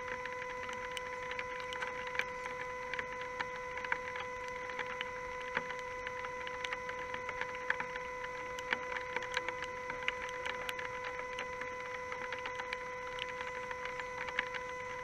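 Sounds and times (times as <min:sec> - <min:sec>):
raindrops ticking: 0:00.0 - 0:15.0
steady high-pitched whine: 0:00.0 - 0:15.0.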